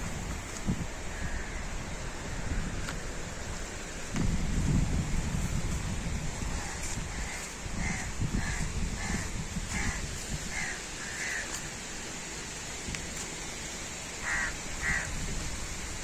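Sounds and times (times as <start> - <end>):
bird calling: 6.5 - 11.6, 14.2 - 15.1.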